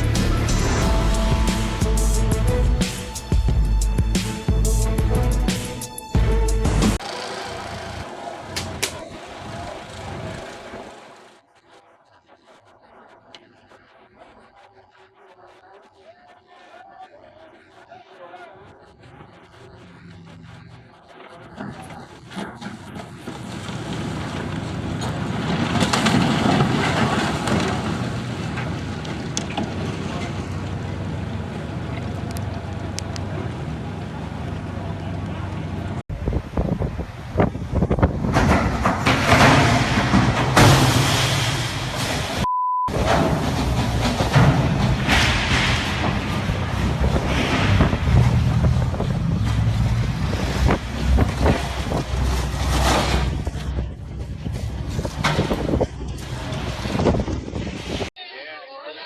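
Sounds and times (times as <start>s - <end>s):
low rumble: 0.0s - 5.5s, 30.3s - 58.1s
low engine drone: 0.0s - 15.4s, 17.6s - 23.2s, 43.1s - 56.9s
water noise: 26.4s - 58.1s
wind buffeting microphone: 36.1s - 39.0s, 46.2s - 58.1s.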